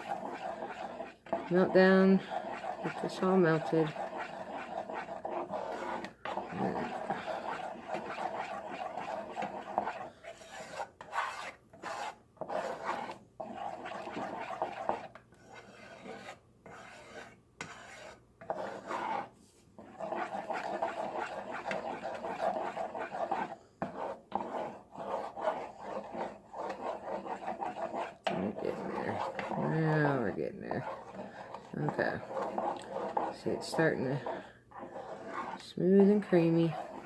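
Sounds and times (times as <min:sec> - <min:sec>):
spoon scraping a pan: 0:00.0 - 0:37.0.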